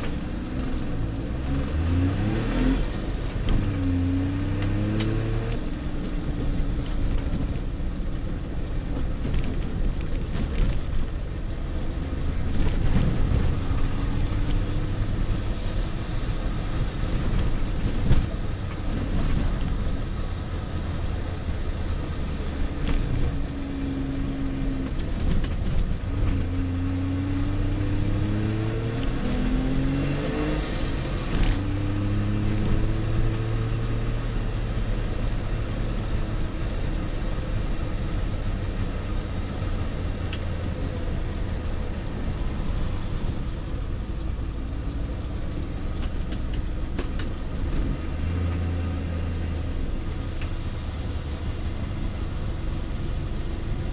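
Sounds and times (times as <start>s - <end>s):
road noise: 0.0s - 53.9s
two-stroke car engine: 0.0s - 53.9s.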